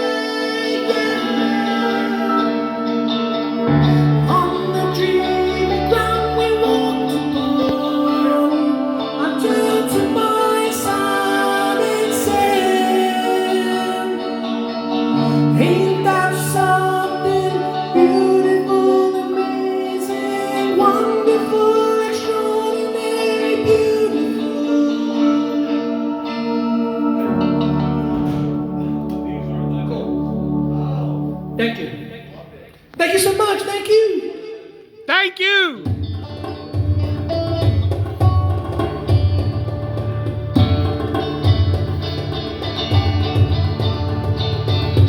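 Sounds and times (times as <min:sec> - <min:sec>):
person singing long notes: 0:00.0 - 0:28.8
live band playing: 0:00.0 - 0:31.6, 0:34.9 - 0:45.0
bass guitar: 0:00.0 - 0:31.8, 0:35.8 - 0:45.0
guitar chords: 0:00.0 - 0:32.4, 0:34.9 - 0:45.0.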